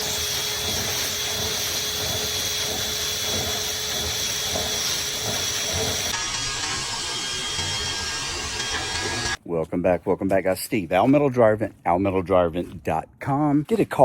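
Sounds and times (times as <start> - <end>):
electric motor whining: 0.0 - 9.4.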